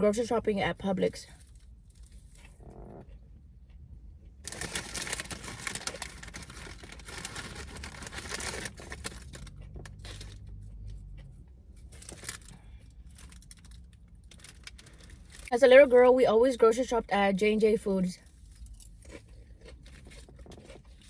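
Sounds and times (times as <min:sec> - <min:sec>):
paper wrapper crinkling: 0:04.4 - 0:10.4, 0:11.9 - 0:15.5.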